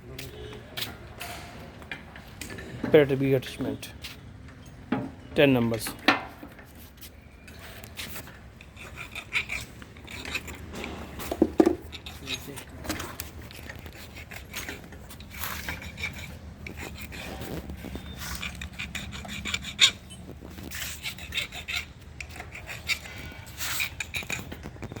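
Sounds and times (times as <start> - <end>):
scraping and rubbing: 5.7 - 25.0.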